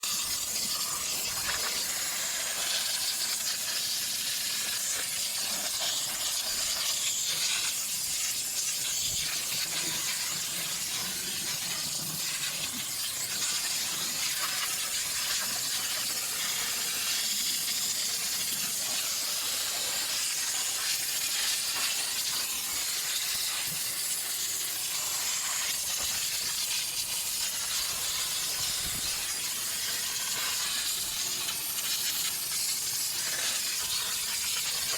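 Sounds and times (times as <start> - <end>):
steam jet hissing: 0.0 - 34.9.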